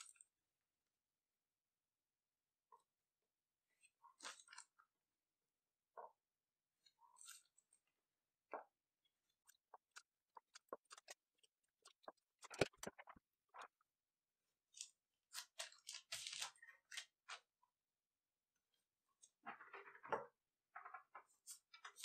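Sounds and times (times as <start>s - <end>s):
paper rustling: 9.7s - 13.7s, 14.7s - 17.5s.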